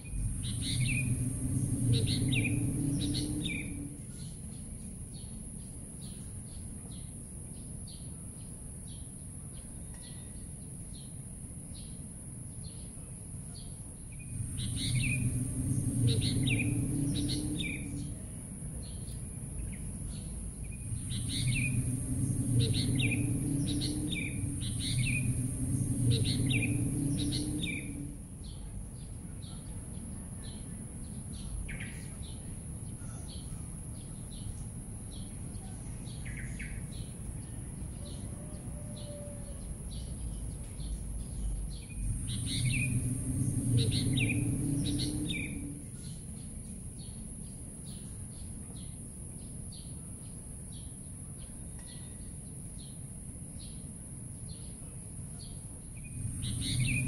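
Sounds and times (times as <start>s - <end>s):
low hum: 0.0s - 6.1s, 14.0s - 48.8s, 55.6s - 57.0s
steady high hiss: 0.0s - 6.4s, 14.0s - 37.9s, 39.8s - 51.4s, 52.4s - 57.0s
small birds chirping: 0.0s - 12.0s, 12.6s - 38.3s, 39.0s - 57.0s.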